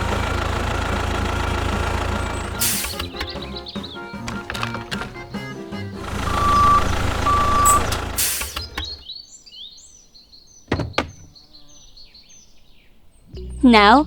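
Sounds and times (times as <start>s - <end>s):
truck engine rumbling: 0.0s - 9.1s
quick knocks: 4.2s - 5.4s, 10.7s - 11.3s
faint high chirps: 6.0s - 8.1s
electronic beep: 6.2s - 7.9s.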